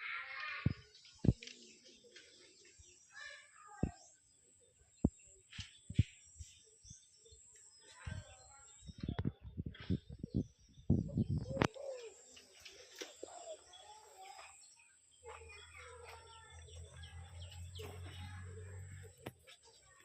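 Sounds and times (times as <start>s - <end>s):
small birds chirping: 0.0s - 20.0s
doves cooing: 10.2s - 14.2s.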